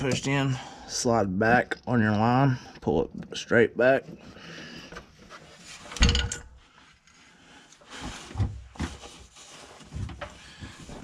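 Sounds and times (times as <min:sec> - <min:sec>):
sharp metal clunk: 0:06.0 - 0:06.5.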